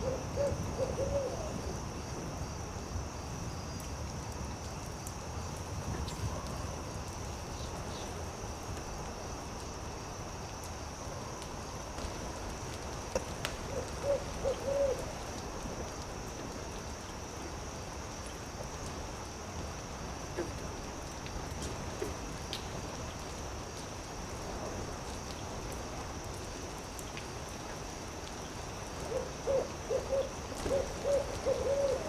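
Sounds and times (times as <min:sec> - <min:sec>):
owl hooting: 0:00.0 - 0:01.5, 0:13.7 - 0:15.0, 0:29.1 - 0:32.0
campfire crackling and popping: 0:03.8 - 0:29.1.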